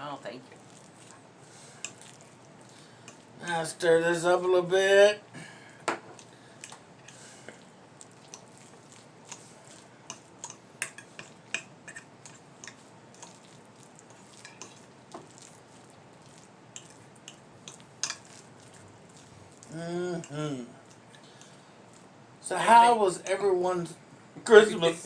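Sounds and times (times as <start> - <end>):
cutlery clinking against dishes: 18.0 - 18.4.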